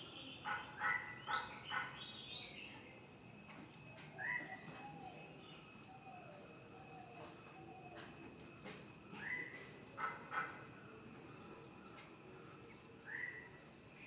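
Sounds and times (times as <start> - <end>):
bird calls: 0.2 - 2.6, 4.2 - 5.2, 9.1 - 10.8
faint high whine: 2.1 - 14.0.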